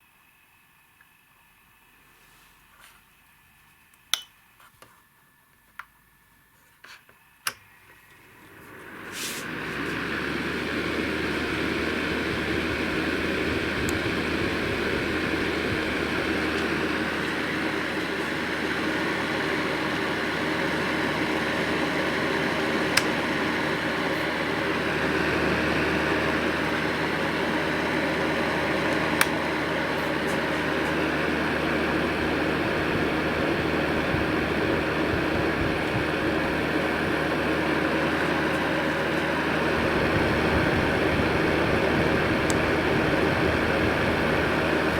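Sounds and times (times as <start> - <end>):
heater clicks: 7.4 - 8.3, 11.8 - 44.9
fan heater blower whoosh: 8.3 - 44.9.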